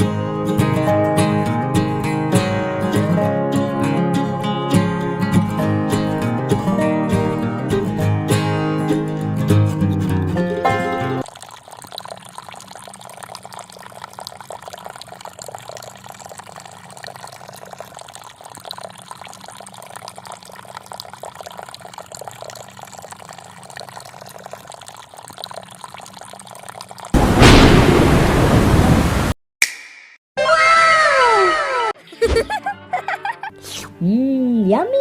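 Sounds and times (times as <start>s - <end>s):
water trickling: 11.2s - 29.3s
water rushing: 27.2s - 29.4s.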